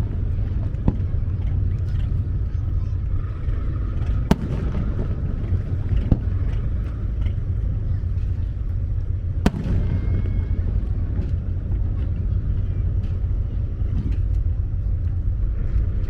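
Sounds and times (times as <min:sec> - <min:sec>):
steady low rumble: 0:00.0 - 0:16.0
fireworks bangs: 0:04.2 - 0:07.6, 0:09.3 - 0:13.3.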